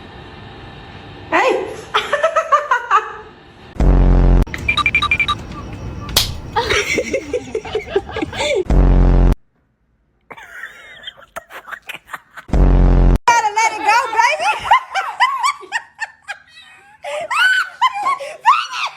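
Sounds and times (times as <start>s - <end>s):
laughter in bursts: 1.9s - 3.2s, 6.4s - 8.7s, 10.4s - 12.5s, 13.8s - 18.9s.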